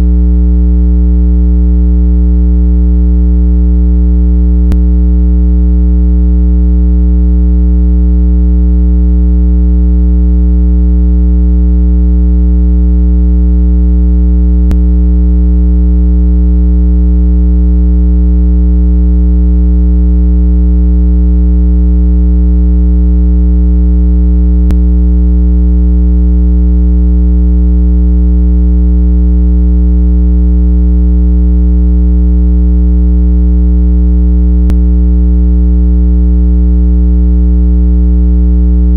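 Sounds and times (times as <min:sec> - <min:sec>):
low electronic tone: 0:00.0 - 0:18.6, 0:23.1 - 0:26.2, 0:34.6 - 0:35.5, 0:38.6 - 0:38.9.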